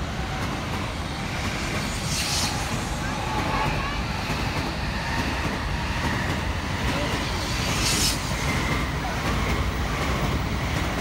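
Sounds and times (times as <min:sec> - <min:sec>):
train wheels rumbling on rail: 0:00.0 - 0:11.0
brief hiss: 0:01.8 - 0:03.1.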